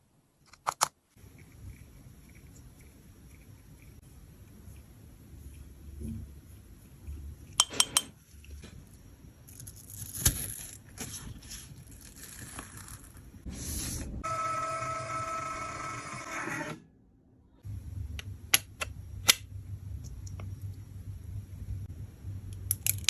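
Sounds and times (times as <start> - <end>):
hum with pitched whine: 17.6 - 23.0.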